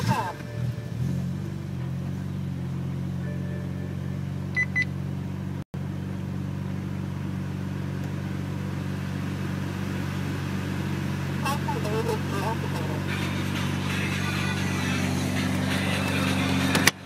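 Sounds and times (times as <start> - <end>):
car engine idling: 0.0 - 17.0
short high beeps: 3.2 - 4.9.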